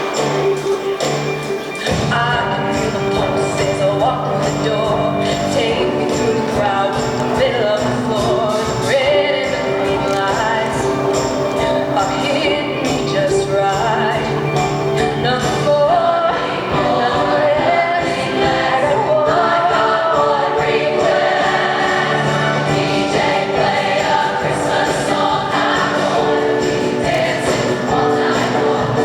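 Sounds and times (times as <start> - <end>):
musical accompaniment: 0.0 - 29.0
choir singing: 15.2 - 29.0.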